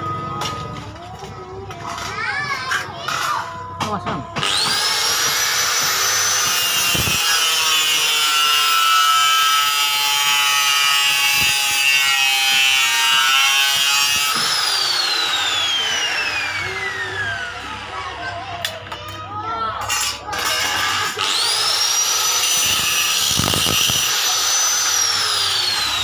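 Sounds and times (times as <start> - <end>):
electric motor whine: 4.4 - 17.9, 21.2 - 26.0.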